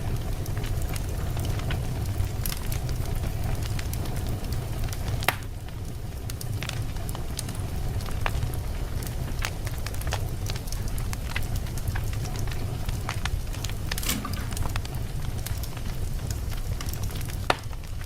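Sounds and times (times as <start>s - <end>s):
fire crackling in fireplace: 0.0s - 18.0s
loud pop of burning log: 13.5s - 17.8s.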